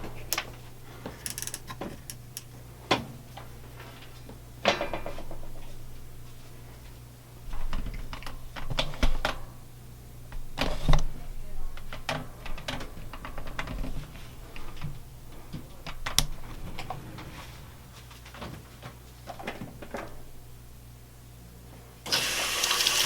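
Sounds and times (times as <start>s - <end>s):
washing machine low hum: 21.6s - 23.0s.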